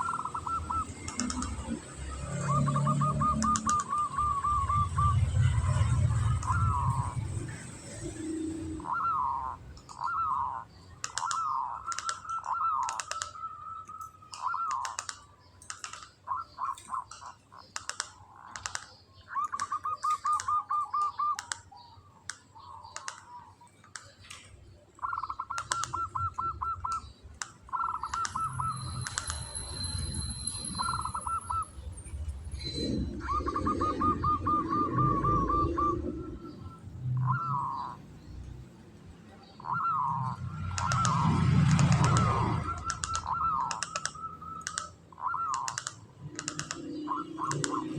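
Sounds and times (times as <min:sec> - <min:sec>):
sharp clicks: 0:00.0 - 0:02.4, 0:03.2 - 0:04.3, 0:11.0 - 0:31.6, 0:40.6 - 0:47.9
dove cooing and trilling: 0:00.0 - 0:15.1, 0:19.2 - 0:23.6, 0:25.0 - 0:38.3, 0:39.4 - 0:47.9.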